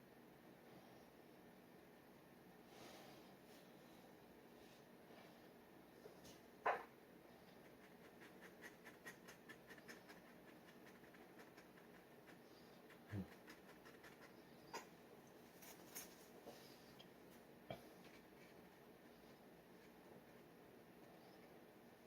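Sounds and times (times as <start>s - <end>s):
pen scratching on paper: 7.6s - 14.4s.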